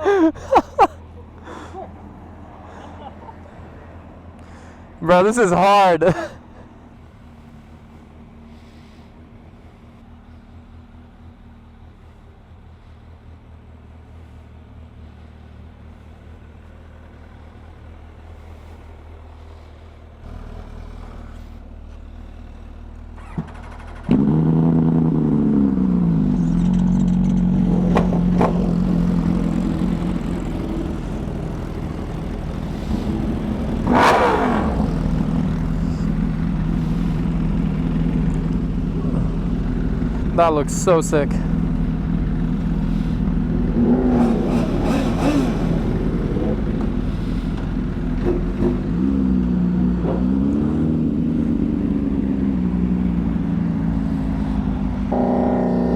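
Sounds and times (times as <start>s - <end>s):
faint engine hum: 0.0s - 55.9s
motorcycle engine starting and idling: 15.0s - 55.9s.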